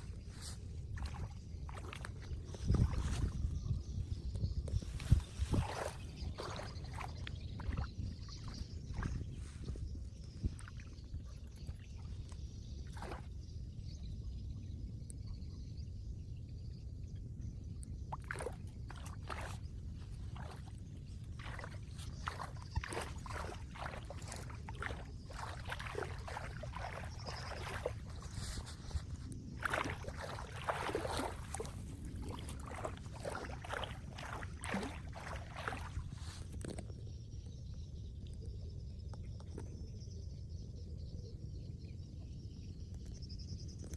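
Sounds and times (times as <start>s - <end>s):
water sloshing and splashing: 0.0s - 13.5s, 17.8s - 37.0s.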